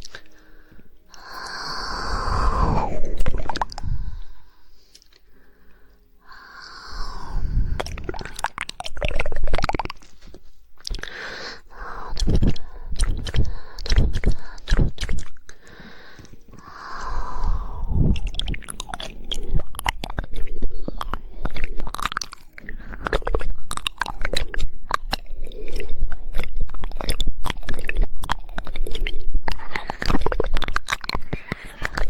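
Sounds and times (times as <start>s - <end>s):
wet tongue clicks and mouth smacks: 0.0s - 0.4s, 7.7s - 11.2s, 12.0s - 15.6s, 17.4s - 32.0s.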